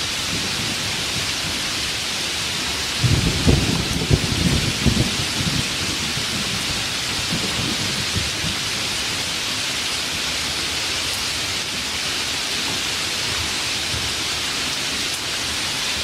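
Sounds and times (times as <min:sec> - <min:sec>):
low thunder rumble: 0:00.0 - 0:09.4
heavy rain falling: 0:00.0 - 0:16.0.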